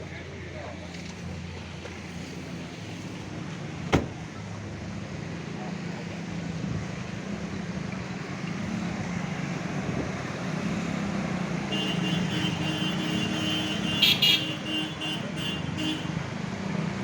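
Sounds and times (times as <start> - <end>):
car horn toots: 11.7 - 16.2.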